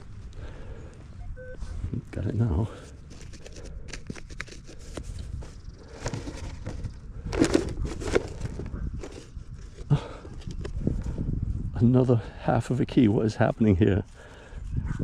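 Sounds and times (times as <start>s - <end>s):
soil and grass crunching: 0.0s - 11.6s.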